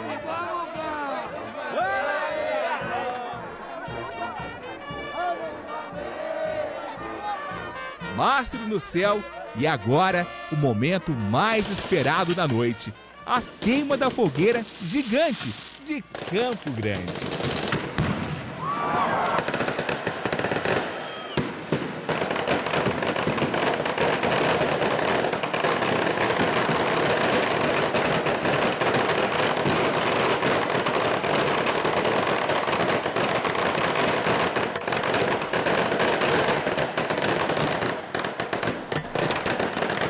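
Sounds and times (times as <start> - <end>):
firecrackers banging: 9.8 - 18.7, 19.4 - 40.0.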